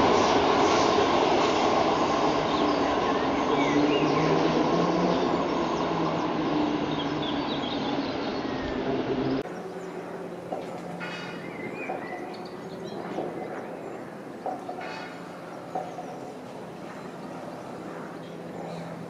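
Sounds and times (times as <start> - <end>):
electric train running past: 0.0 - 19.0
birds chirping: 2.4 - 19.0.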